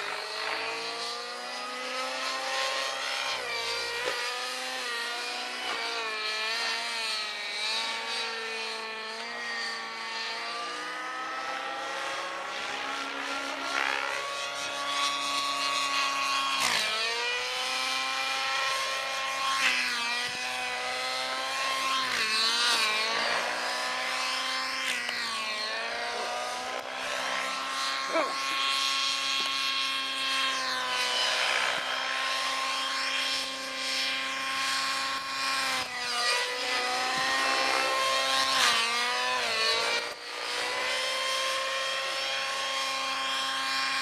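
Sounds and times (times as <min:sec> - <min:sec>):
model helicopter motor whine: 0:00.0 - 0:44.0.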